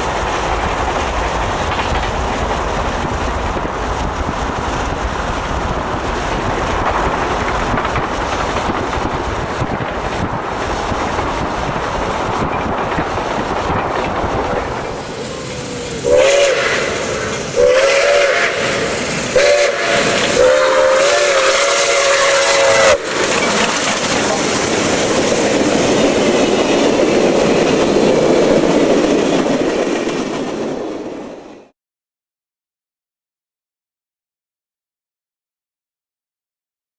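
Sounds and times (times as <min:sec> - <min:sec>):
train rumbling past: 0:00.0 - 0:31.7
locomotive horn blasts: 0:16.0 - 0:17.0, 0:17.6 - 0:18.8, 0:19.4 - 0:23.1.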